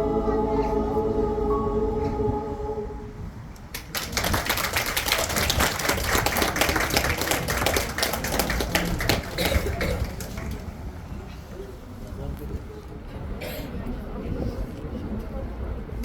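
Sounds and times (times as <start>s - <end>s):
choir holding a chord: 0.0s - 3.6s
audience applauding: 3.7s - 10.9s.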